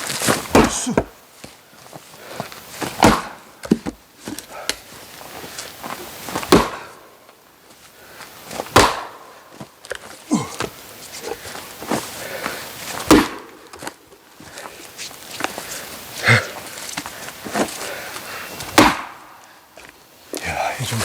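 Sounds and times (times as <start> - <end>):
axe chopping firewood: 0.5 - 1.1, 3.0 - 4.0, 6.5 - 6.9, 8.7 - 9.1, 13.0 - 13.8, 18.7 - 19.2.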